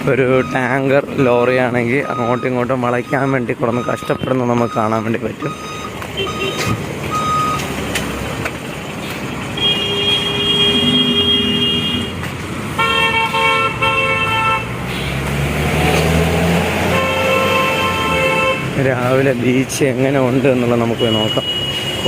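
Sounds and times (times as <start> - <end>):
heavy engine rumbling: 0.0 - 22.0
road traffic: 0.0 - 22.0
reversing beeper: 2.0 - 7.6
vehicle horn honking: 6.2 - 6.7, 9.6 - 12.2, 12.8 - 14.8, 16.9 - 18.8, 21.0 - 22.0.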